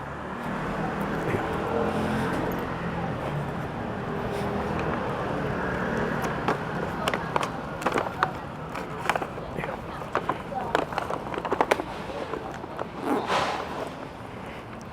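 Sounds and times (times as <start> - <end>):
vehicle passing: 0.0 - 7.8
street rumble: 0.0 - 14.9.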